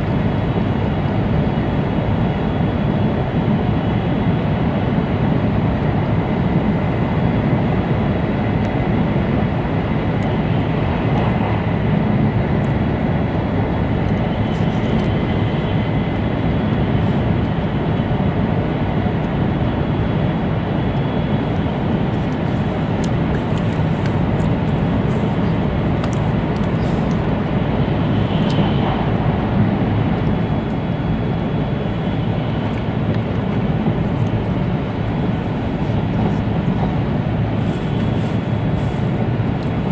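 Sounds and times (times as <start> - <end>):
faint high whine: 13.0 - 39.9.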